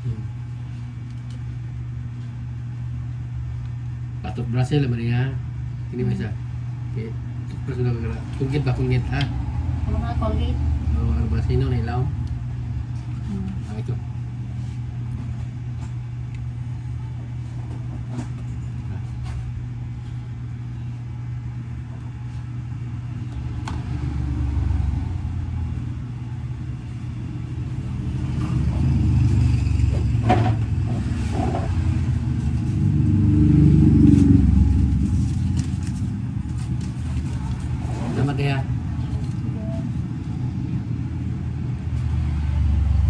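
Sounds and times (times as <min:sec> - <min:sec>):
steady low hum: 0:00.0 - 0:43.0
deep rumble: 0:23.0 - 0:43.0.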